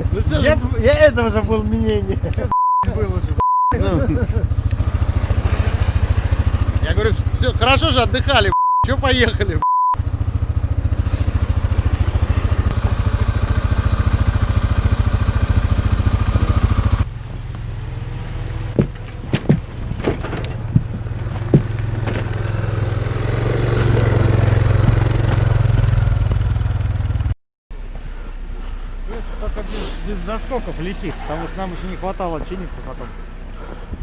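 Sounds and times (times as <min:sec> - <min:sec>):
off-road vehicle engine running: 0:00.0 - 0:34.0
sharp knocks: 0:18.7 - 0:22.5.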